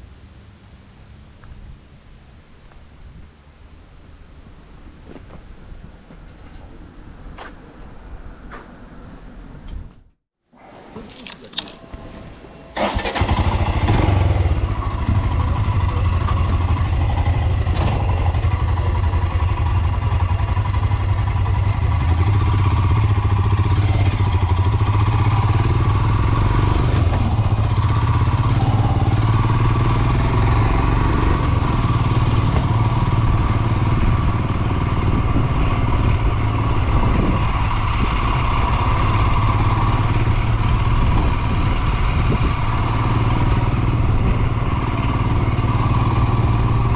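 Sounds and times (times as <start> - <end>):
motorcycle engine running: 12.8 - 46.9.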